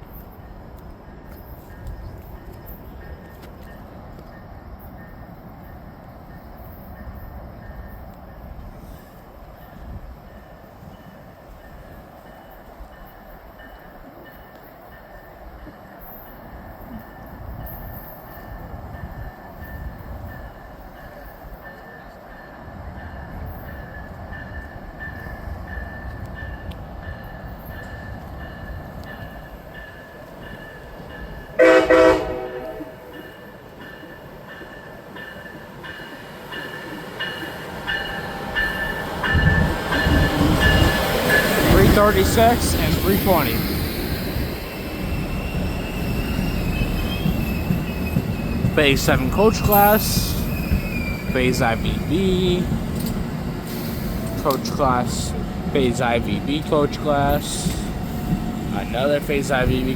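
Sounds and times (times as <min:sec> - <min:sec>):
train bell ringing: 0:09.6 - 0:59.9
train horn blast: 0:31.6 - 0:33.1
locomotive rumble: 0:35.0 - 0:59.9.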